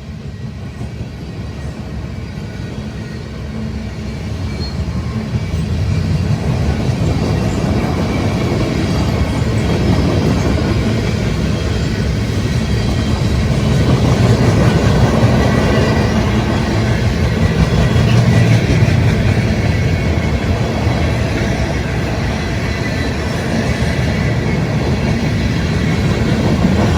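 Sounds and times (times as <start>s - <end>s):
freight train wheels rumbling on rail: 0.0s - 26.9s.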